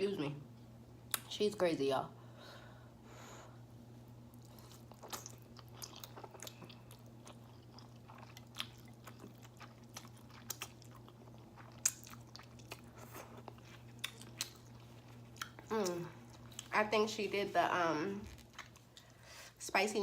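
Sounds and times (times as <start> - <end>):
faint low hum: 0.0 - 20.0
wet chewing and mouth smacks: 4.3 - 16.8, 18.3 - 19.2.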